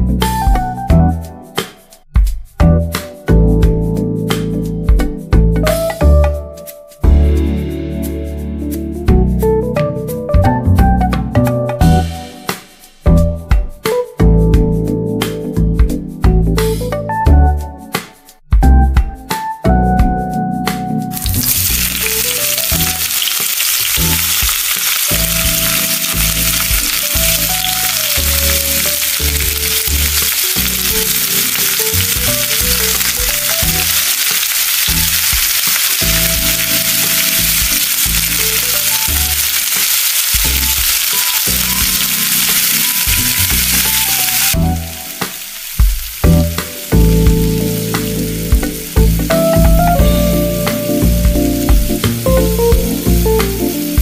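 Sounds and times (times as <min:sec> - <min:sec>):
food sizzling in hot oil: 0:21.1 - 0:54.0.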